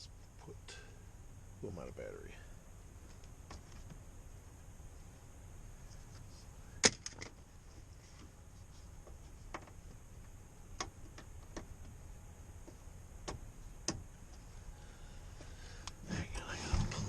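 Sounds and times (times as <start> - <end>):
faint background hiss: 0.0 - 17.0
sharp clicks and light knocks: 9.0 - 12.0, 12.6 - 14.4.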